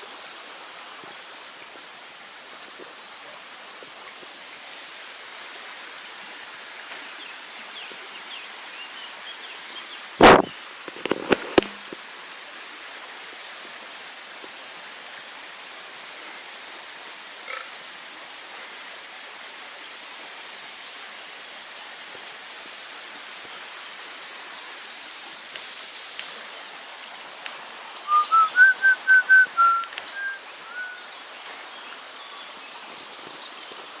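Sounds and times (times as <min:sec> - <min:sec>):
river rushing: 0:21.0 - 0:34.0
bird whistling: 0:28.0 - 0:31.1
faint high bird chirps: 0:28.0 - 0:31.2.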